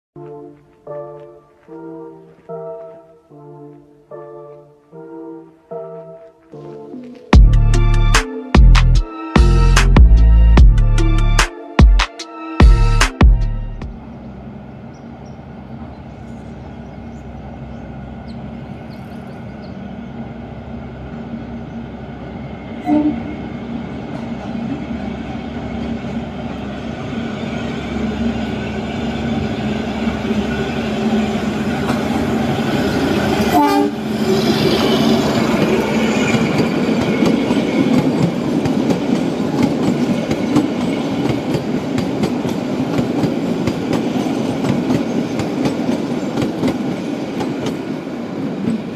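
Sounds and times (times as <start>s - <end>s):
train running: 13.7s - 48.9s
train horn toots: 22.7s - 24.8s, 33.1s - 37.8s
train wheel clatter: 35.6s - 47.9s.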